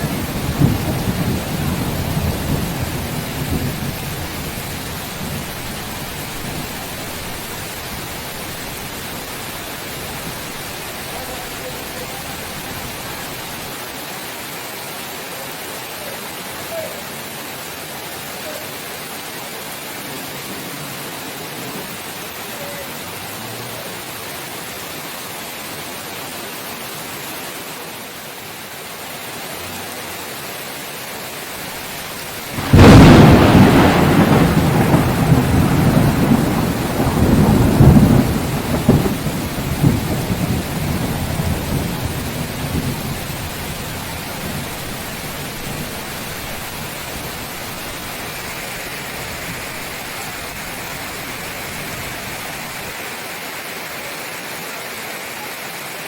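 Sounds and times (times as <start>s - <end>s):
thunderclap rumbling: 0.0s - 13.6s, 32.4s - 52.8s
steady rain: 0.0s - 56.0s.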